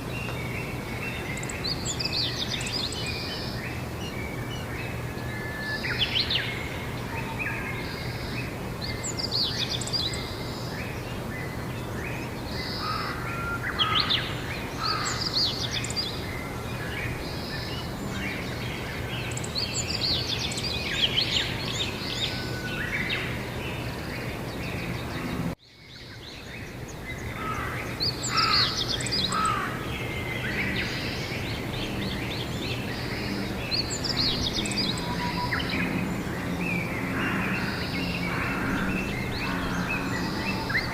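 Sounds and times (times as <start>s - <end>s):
songbirds chirping: 0.0s - 40.9s
steady low hum: 26.9s - 40.9s.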